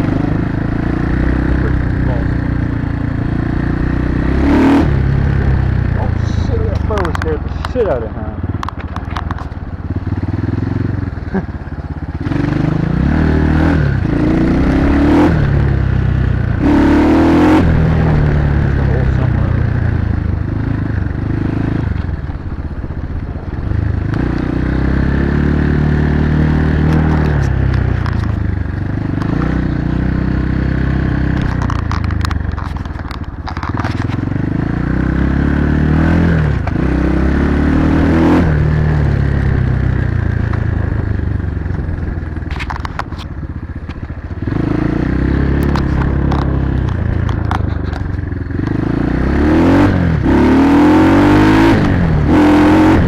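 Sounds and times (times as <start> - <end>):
dirt bike engine revving: 0.0 - 22.4, 23.5 - 32.2, 33.6 - 43.2, 43.9 - 53.0
clicks and clatter: 6.8 - 7.8, 8.5 - 9.6, 26.8 - 28.5, 31.3 - 34.3, 41.6 - 44.4, 45.6 - 48.8.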